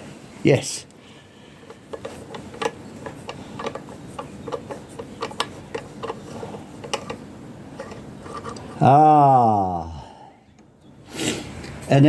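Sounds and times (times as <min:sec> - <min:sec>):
light metal clicks and taps: 0:01.7 - 0:06.2.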